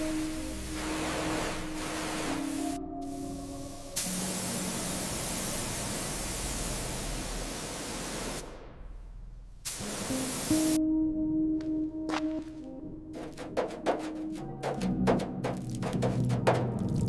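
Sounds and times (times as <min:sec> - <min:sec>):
pressure washer spraying: 0:00.0 - 0:08.4, 0:09.7 - 0:10.8.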